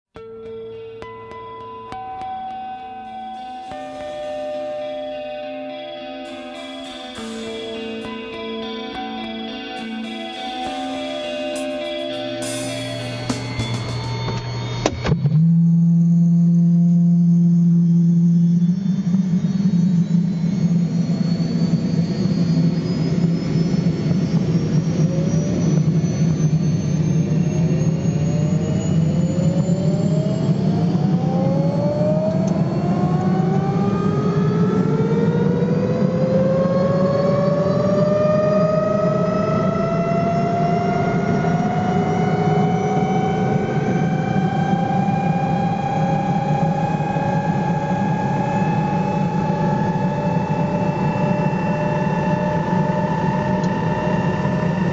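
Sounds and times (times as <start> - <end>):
helicopter engine whine rising: 1.8 - 54.9
engine and rotor rumble: 13.7 - 54.9.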